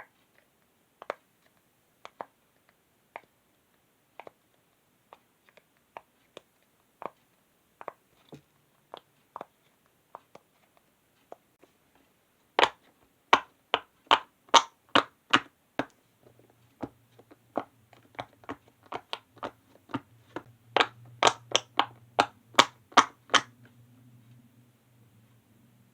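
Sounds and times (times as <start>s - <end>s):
fidget toy bubbles popping: 20.8s - 23.5s.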